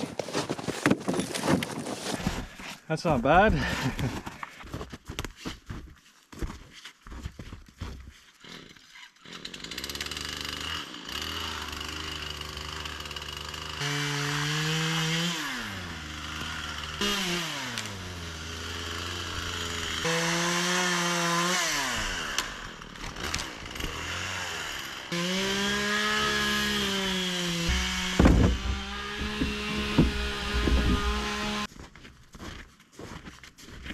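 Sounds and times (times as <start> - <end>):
chainsaw cutting wood: 7.8 - 31.7
heavy thumps: 27.1 - 31.7.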